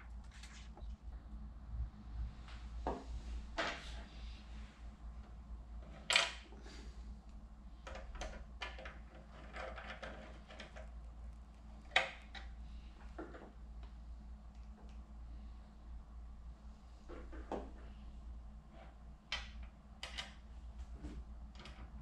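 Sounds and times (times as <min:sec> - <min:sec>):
hardware parts clicking and rustling: 0:07.8 - 0:11.0.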